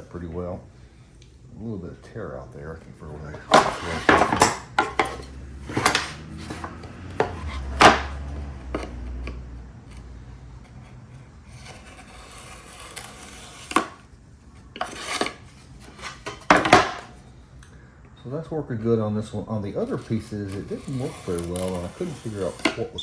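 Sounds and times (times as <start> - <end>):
trimmer blades scraping wood: 3.0 - 17.2, 18.8 - 23.0
tool handling knocks: 3.3 - 9.4, 14.8 - 17.2.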